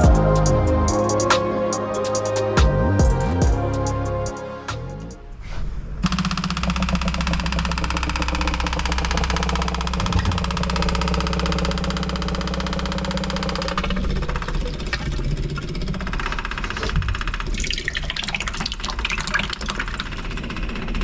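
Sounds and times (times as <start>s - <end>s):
electric pump ticking: 6.0s - 21.0s.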